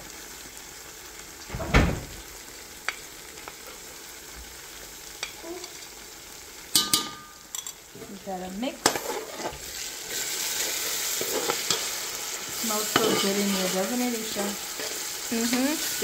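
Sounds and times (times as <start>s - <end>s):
onion and tomato sizzling in oil: 0.0s - 16.0s
spoon striking metal pot: 6.7s - 7.8s.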